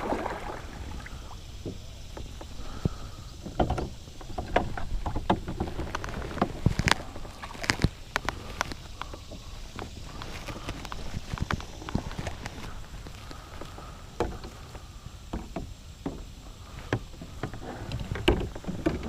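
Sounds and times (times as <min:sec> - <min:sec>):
wind rumble on microphone: 0:00.0 - 0:19.0
gear knocking against kayak hull: 0:01.3 - 0:19.0.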